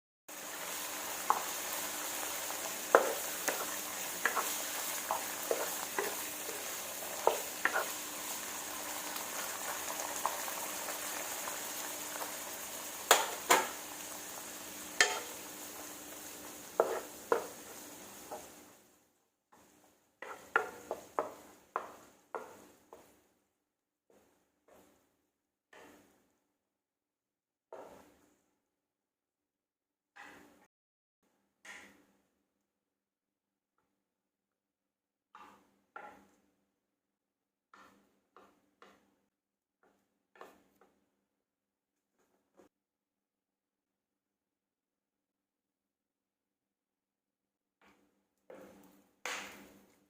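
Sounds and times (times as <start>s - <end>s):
food sizzling in a frying pan: 0.3s - 19.0s, 20.2s - 23.0s
utensil knocking against pan: 13.1s - 13.8s, 15.0s - 15.3s.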